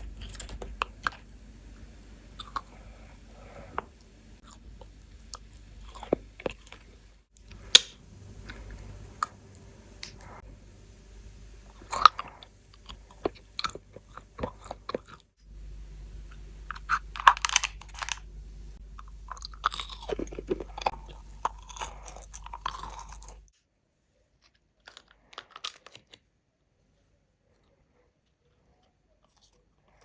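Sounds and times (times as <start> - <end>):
crunchy candy being chewed: 0.0 - 1.3, 2.3 - 9.4, 11.7 - 15.4, 16.2 - 18.2, 18.8 - 23.5, 24.4 - 26.2.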